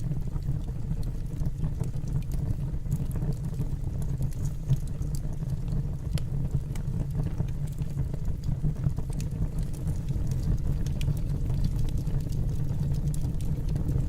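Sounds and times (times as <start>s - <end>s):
fire crackles and pops: 0.0s - 14.0s
fire rumbling in fireplace: 0.0s - 14.0s.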